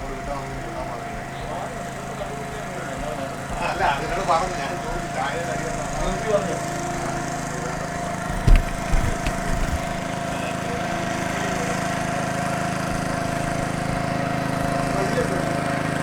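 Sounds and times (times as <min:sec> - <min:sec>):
boat engine droning: 0:00.0 - 0:16.0
low knocks: 0:08.3 - 0:10.0.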